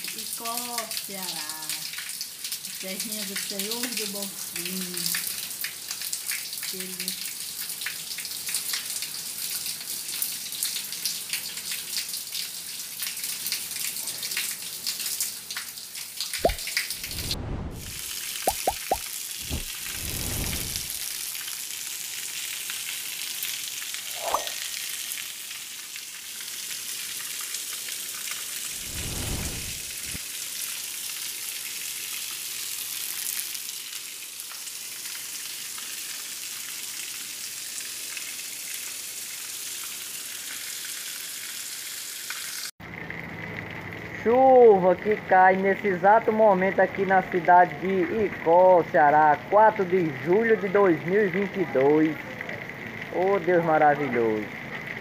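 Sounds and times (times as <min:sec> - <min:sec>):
rain on roofs and pavement: 0:00.0 - 0:55.0
low muffled rumbles: 0:16.4 - 0:21.0.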